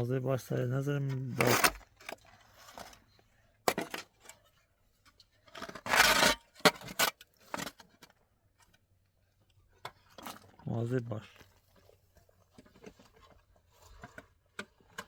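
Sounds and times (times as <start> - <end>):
rough scraping: 1.2 - 3.1, 5.4 - 7.8.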